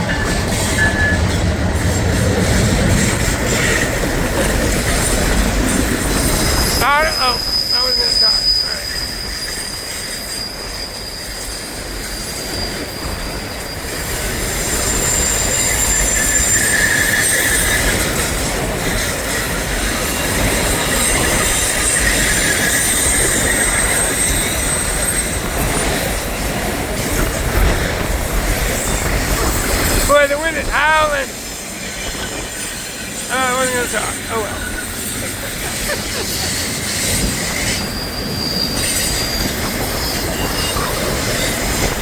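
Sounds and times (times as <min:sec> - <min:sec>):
train wheels squealing: 0:00.0 - 0:30.2, 0:31.5 - 0:42.0
train rumble: 0:00.0 - 0:42.0.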